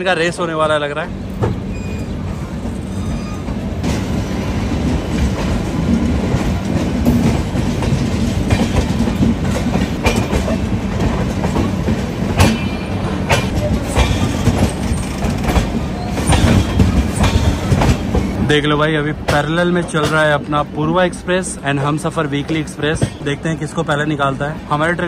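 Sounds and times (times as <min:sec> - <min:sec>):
trains rumbling: 0:00.0 - 0:25.0
wheels clacking over rail joints: 0:01.4 - 0:20.6.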